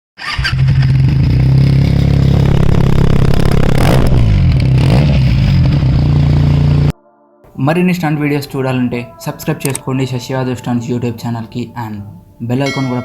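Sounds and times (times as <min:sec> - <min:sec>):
motorcycle engine running: 0:00.4 - 0:06.9.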